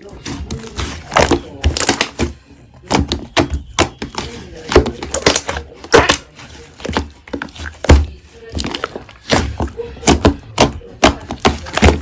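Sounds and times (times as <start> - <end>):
slime clicking and popping: 1.1 - 6.2.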